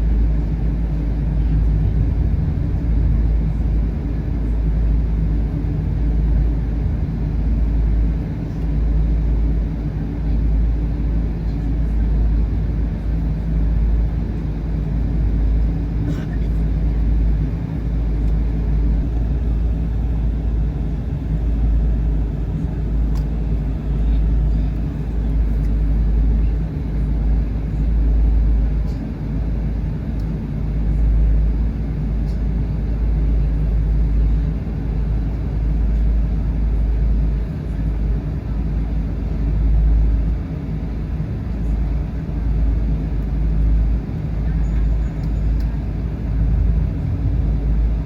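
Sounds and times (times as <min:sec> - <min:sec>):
airliner cabin engine rumble: 0:00.0 - 0:48.0.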